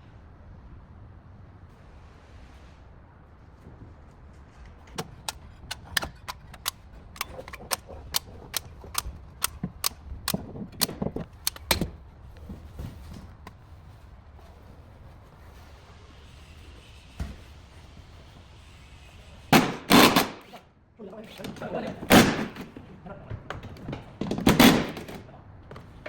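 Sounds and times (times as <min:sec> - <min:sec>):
sharp clicks and taps: 0:05.0 - 0:11.9.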